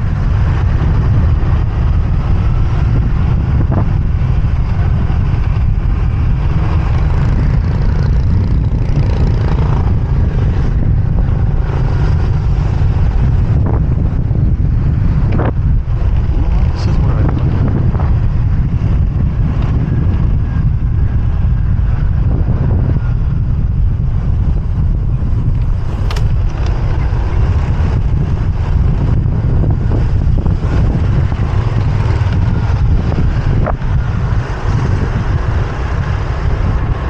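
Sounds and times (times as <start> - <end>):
traffic engines droning: 0.0 - 37.0
wind rushing over microphone: 0.0 - 37.0
sharp clicks: 25.4 - 26.8.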